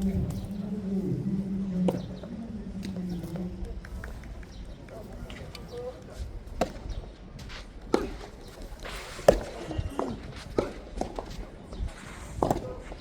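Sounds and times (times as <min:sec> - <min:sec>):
rackets hitting tennis ball: 0:03.8 - 0:07.1, 0:07.8 - 0:11.5.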